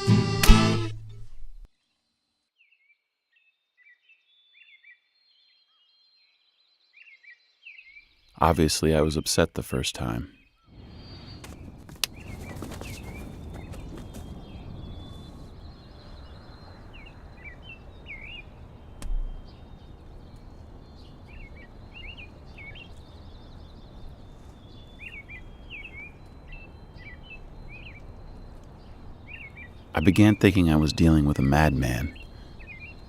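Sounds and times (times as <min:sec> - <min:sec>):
small birds chirping: 0:01.8 - 0:33.0
outdoor background hum: 0:10.8 - 0:33.0.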